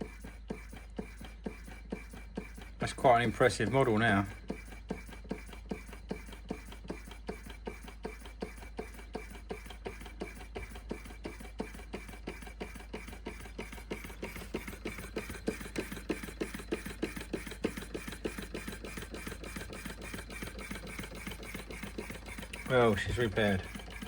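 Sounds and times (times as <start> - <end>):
stirling engine clicking: 0.0 - 24.0.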